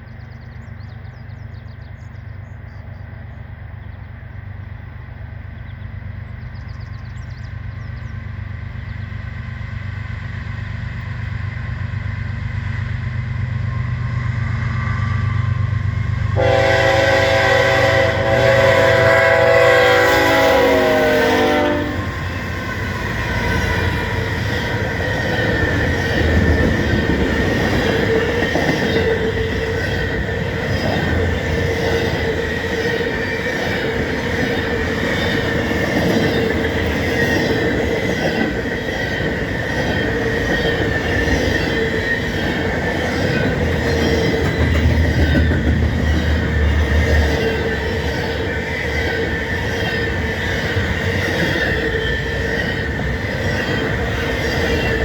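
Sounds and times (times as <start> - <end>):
train rumble: 0.0 - 55.0
locomotive air horn: 16.4 - 22.2
train wheels clattering: 19.8 - 55.0.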